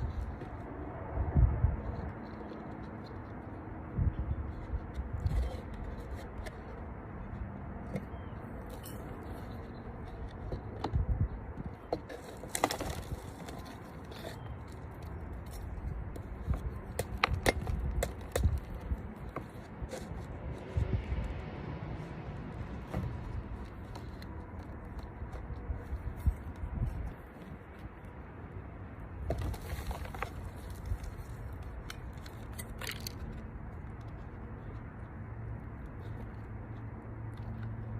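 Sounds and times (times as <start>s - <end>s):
objects scraping and clicking: 4.4s - 21.3s, 22.6s - 28.1s, 29.2s - 35.1s.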